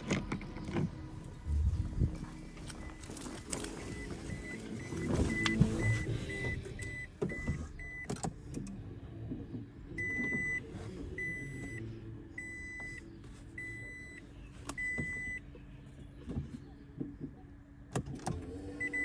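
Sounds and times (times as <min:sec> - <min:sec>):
car warning chime beeping: 0:00.4 - 0:08.6, 0:10.0 - 0:15.5, 0:18.6 - 0:19.0.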